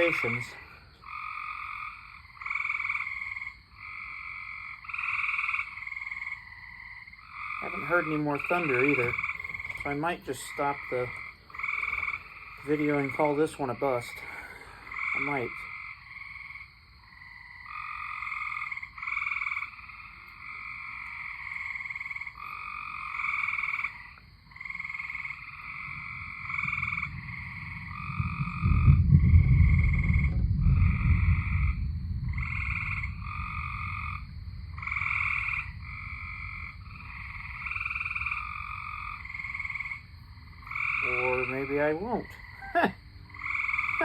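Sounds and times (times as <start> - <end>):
tree frogs trilling: 0.0 - 44.0
low rumble of thunder: 25.5 - 44.0.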